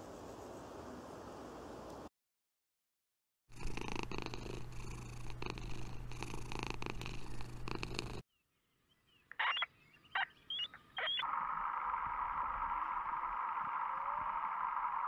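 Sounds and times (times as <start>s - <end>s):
cat purring: 3.5s - 8.2s.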